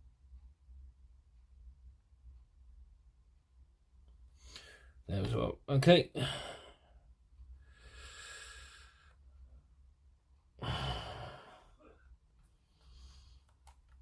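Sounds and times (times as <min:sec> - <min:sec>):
person breathing: 0:04.3 - 0:05.0, 0:06.2 - 0:09.7, 0:10.6 - 0:13.6.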